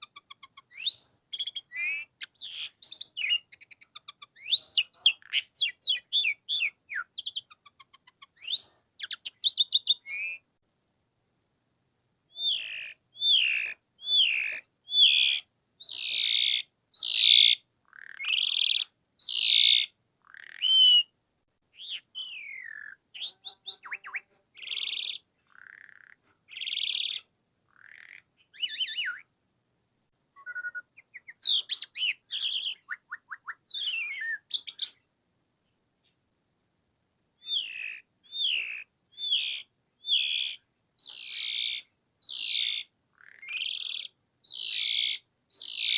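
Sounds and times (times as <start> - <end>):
starling singing: 0.0 - 10.4, 12.3 - 21.1, 21.8 - 29.3, 30.4 - 35.0, 37.4 - 45.9.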